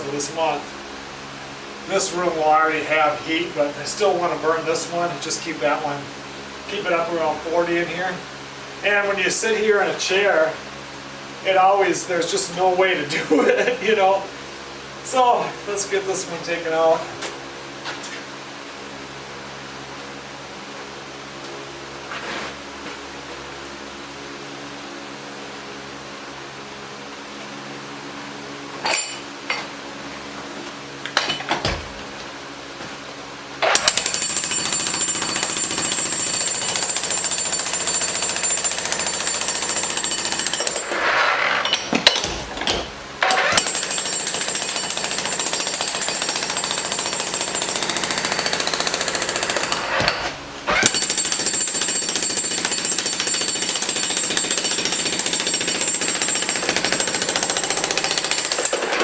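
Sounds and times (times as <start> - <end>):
metal clanks: 31.1 - 32.1, 40.8 - 43.8
jackhammer breaking concrete: 33.6 - 59.0.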